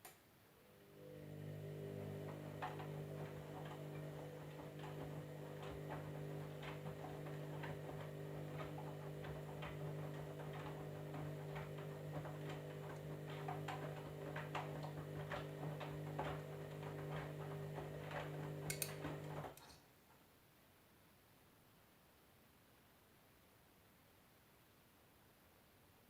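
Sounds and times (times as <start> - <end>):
washing machine hum: 0.6 - 19.7.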